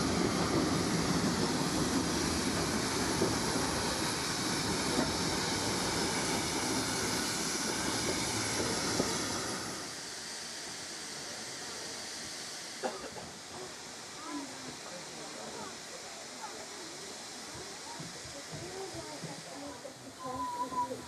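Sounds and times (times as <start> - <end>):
railway carriage rumbling: 0.0 - 14.8.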